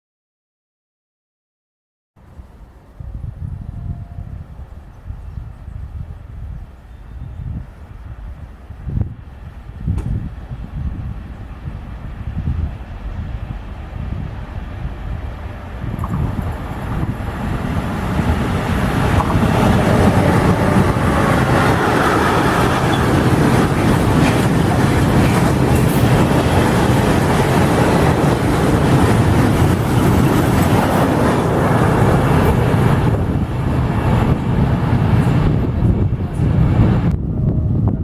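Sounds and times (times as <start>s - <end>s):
train wheels rumbling on rails: 7.6s - 38.0s.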